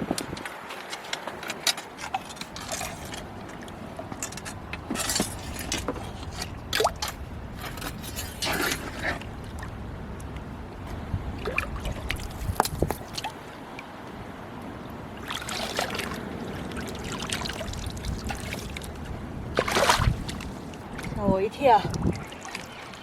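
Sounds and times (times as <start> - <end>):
seawater splashing among rocks: 0.1 - 14.2, 15.0 - 23.0
knocks and scrapes: 0.2 - 9.3.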